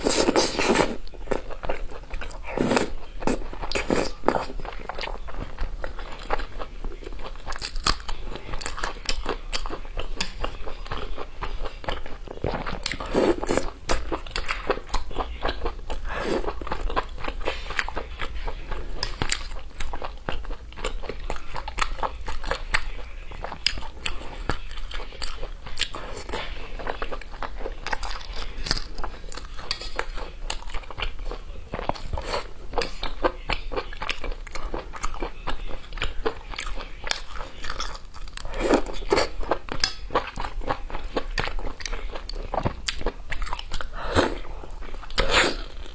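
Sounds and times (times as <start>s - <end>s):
chewing and biting: 0.0s - 45.9s.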